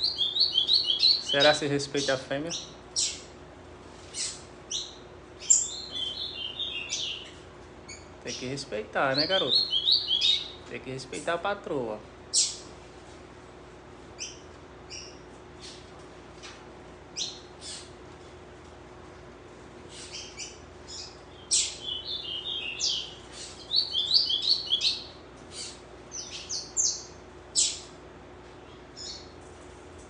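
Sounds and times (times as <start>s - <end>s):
bird chip calls: 0.0s - 3.3s, 4.1s - 10.6s, 12.3s - 12.7s, 14.2s - 15.8s, 17.2s - 17.9s, 19.9s - 27.9s, 28.6s - 29.3s
bird twittering song: 0.0s - 3.3s, 4.1s - 11.4s, 12.3s - 12.7s, 14.2s - 15.8s, 17.1s - 17.9s, 19.9s - 27.9s, 28.6s - 29.4s.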